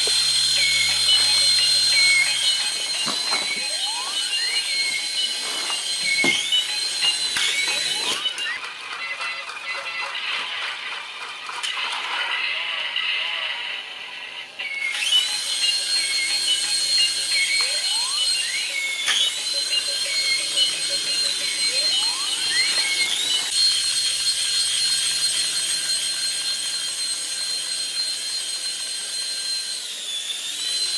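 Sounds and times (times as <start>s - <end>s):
toy helicopter motor whine: 0.0s - 30.9s
rising electronic sweeps: 0.2s - 8.6s, 17.4s - 23.5s.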